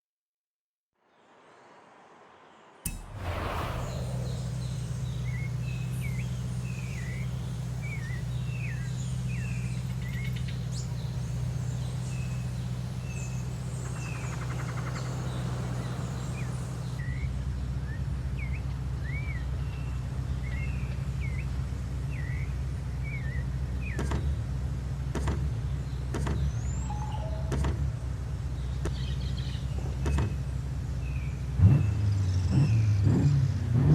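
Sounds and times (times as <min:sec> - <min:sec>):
car engine starting and idling: 0:02.8 - 0:18.0
birds chirping: 0:03.2 - 0:17.0.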